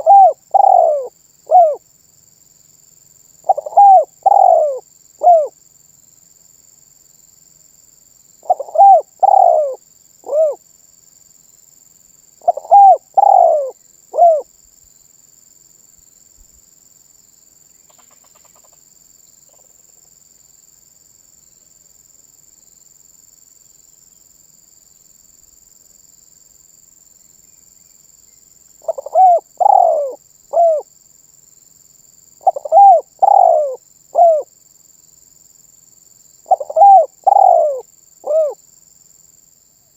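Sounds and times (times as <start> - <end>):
dove cooing: 0.0 - 1.8, 3.4 - 5.6, 8.4 - 10.6, 12.4 - 14.5, 28.8 - 30.9, 32.4 - 34.5, 36.5 - 38.6.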